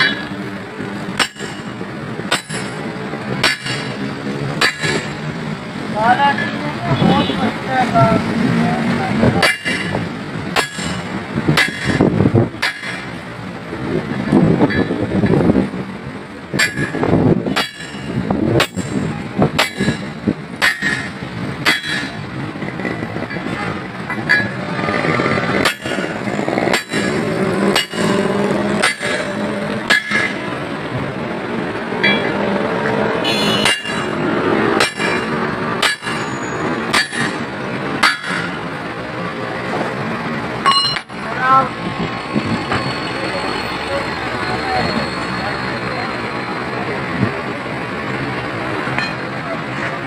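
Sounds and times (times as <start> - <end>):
hammer striking metal: 0.0 - 0.4, 1.2 - 5.3, 9.4 - 13.2, 16.5 - 22.2, 23.3 - 24.6, 25.6 - 30.6, 32.0 - 32.4, 33.2 - 38.6, 40.6 - 41.2.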